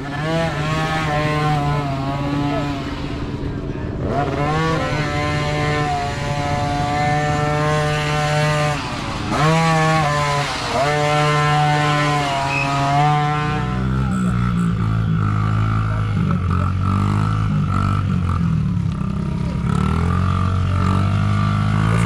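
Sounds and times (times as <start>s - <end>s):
dirt bike engine revving: 0.0s - 22.0s
lower engine sound: 0.0s - 22.0s.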